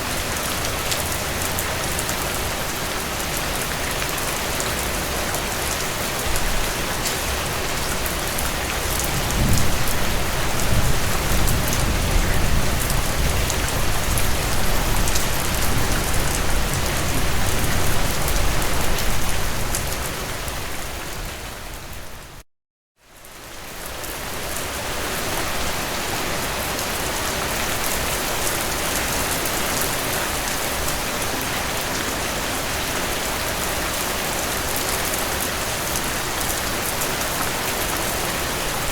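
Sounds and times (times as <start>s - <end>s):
heavy rain on a tin roof: 0.0s - 22.4s, 23.0s - 38.9s
low thunder rumble: 9.1s - 17.8s.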